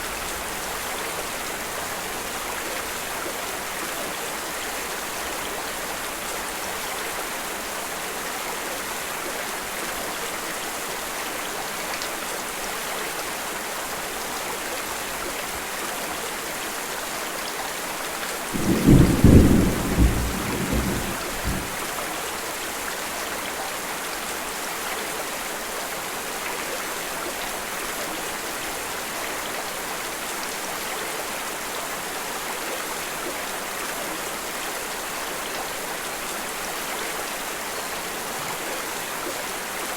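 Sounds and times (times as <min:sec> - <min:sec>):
steady rain: 0:00.0 - 0:39.9
thunder rolling: 0:18.6 - 0:21.8.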